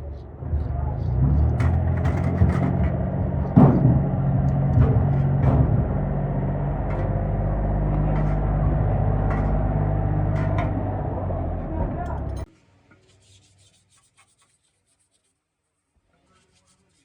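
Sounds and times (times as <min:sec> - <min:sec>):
motor humming: 0:00.6 - 0:12.5
knocks: 0:01.1 - 0:12.4.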